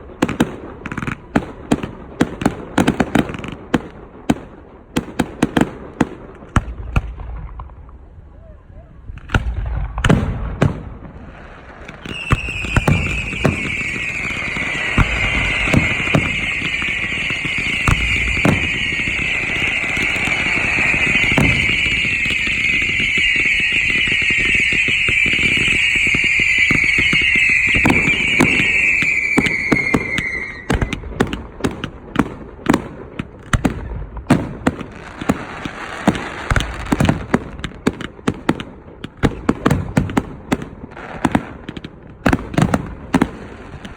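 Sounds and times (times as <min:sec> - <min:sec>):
fireworks bangs and crackling: 0:00.0 - 0:43.9
fireworks shrill whistle: 0:11.8 - 0:31.4
fireworks shell bursts booming: 0:11.8 - 0:32.3.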